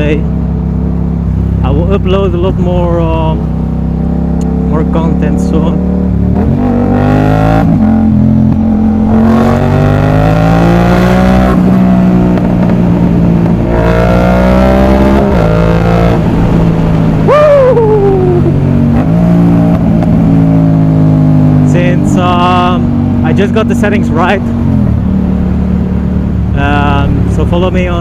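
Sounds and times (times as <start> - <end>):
motorcycle engine accelerating: 0.0 - 28.0
short falling high tone: 17.2 - 18.6.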